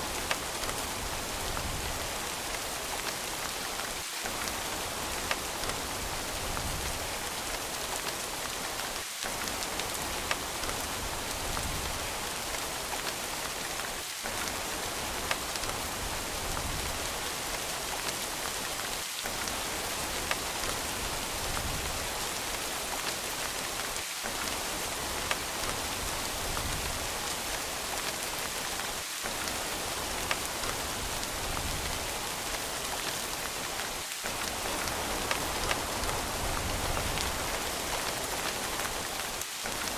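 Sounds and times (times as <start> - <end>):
steady rain: 0.0 - 39.9
raindrop ticks: 0.1 - 0.9, 4.3 - 5.9, 8.8 - 13.2, 14.3 - 15.8, 23.8 - 39.9.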